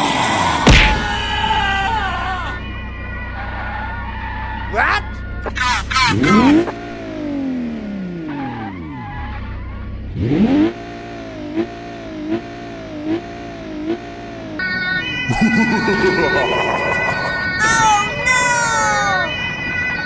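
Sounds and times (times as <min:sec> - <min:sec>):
car engine revving: 0:04.3 - 0:14.7.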